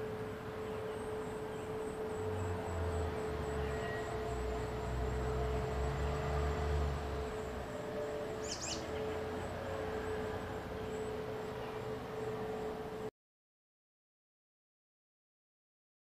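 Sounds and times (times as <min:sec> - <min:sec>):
steady background hum: 0:00.0 - 0:13.1
high bird chirp: 0:08.4 - 0:09.2.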